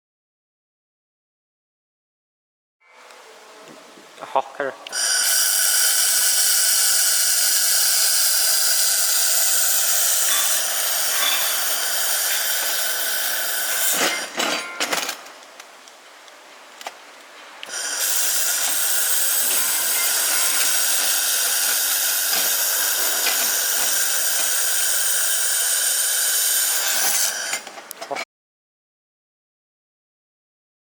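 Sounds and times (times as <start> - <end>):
welding machine hissing and whining: 4.9 - 15.4, 16.6 - 28.0.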